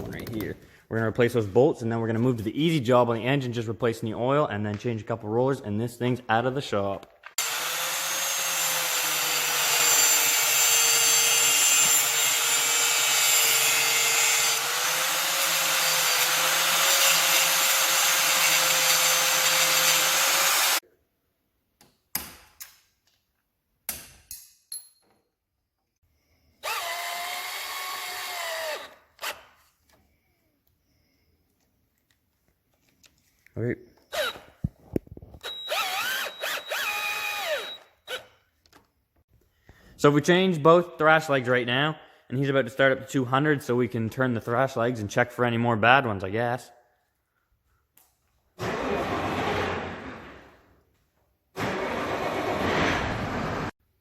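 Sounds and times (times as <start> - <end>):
handheld power tool running: 7.4 - 20.8, 26.6 - 29.5, 35.4 - 38.3.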